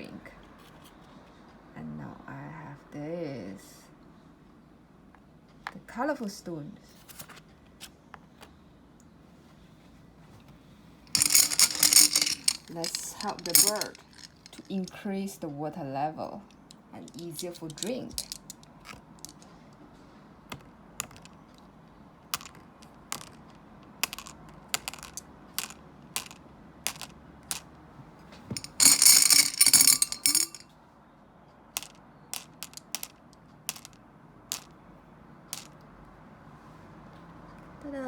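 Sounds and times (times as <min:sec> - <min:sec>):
rattle of stones: 0:11.1 - 0:14.7, 0:17.1 - 0:19.4, 0:23.2 - 0:27.6, 0:28.6 - 0:30.6.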